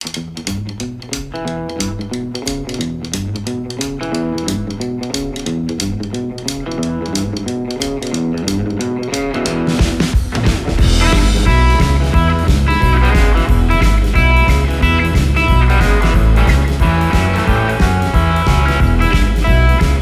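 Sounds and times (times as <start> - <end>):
guitar-led instrumental music: 0.0 - 20.0.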